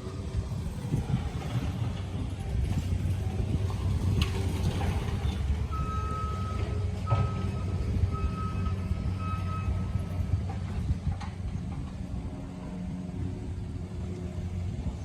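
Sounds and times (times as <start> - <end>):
low rumble: 0.0 - 5.6.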